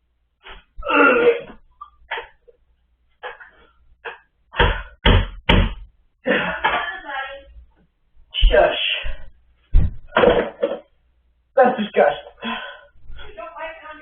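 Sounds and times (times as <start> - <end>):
boy gagging and retching: 0.4 - 2.5.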